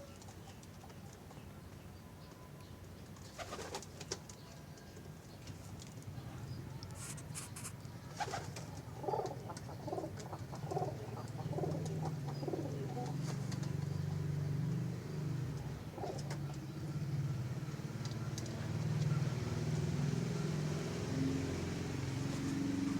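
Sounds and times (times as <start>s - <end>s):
pigeons cooing: 8.0s - 18.0s.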